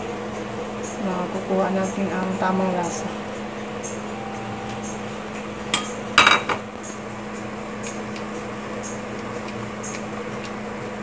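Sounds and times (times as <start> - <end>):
steady low hum: 0.0 - 10.5
glass lid clattering on metal pot: 6.2 - 6.6.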